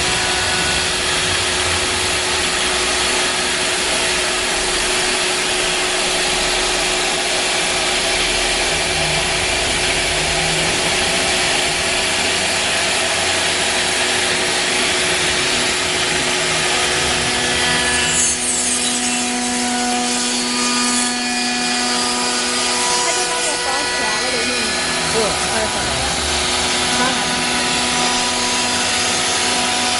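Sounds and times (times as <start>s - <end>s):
router spindle cutting wood: 0.0s - 29.9s.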